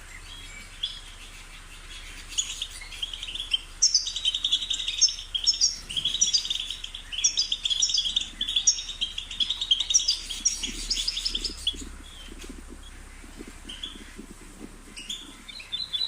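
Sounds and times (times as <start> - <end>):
goldfinch singing: 0.0 - 16.0.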